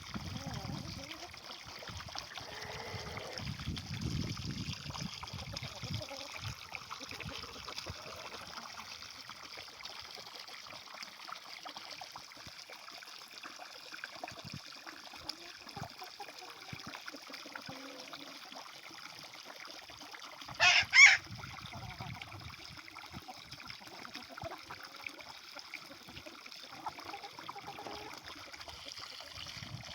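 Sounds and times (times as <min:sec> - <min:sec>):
water trickling: 0:00.0 - 0:29.9
fowl calling: 0:20.6 - 0:21.2.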